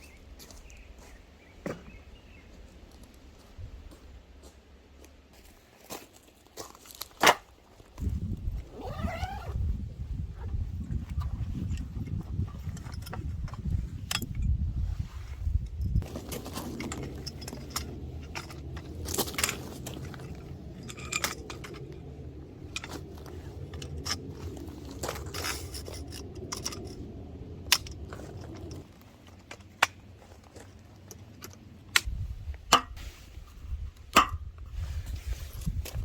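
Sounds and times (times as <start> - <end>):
low steady hum: 8.0 - 36.0.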